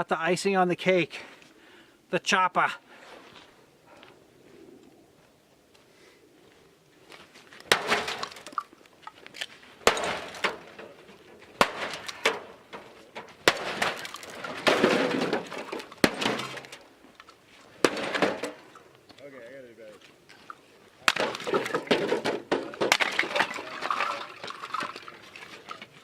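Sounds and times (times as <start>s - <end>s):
debris clattering: 7.6s - 8.8s, 9.8s - 18.9s, 21.0s - 26.0s
tool smashing into microwave: 7.7s - 8.4s, 9.8s - 10.9s, 11.6s - 16.8s
glass breaking: 7.7s - 8.6s, 9.8s - 10.8s, 11.6s - 16.8s, 17.8s - 18.8s, 21.0s - 24.4s.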